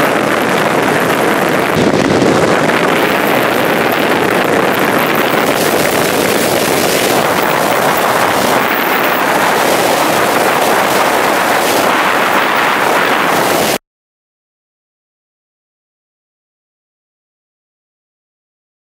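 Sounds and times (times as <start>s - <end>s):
wind buffeting microphone: 0.0s - 13.8s.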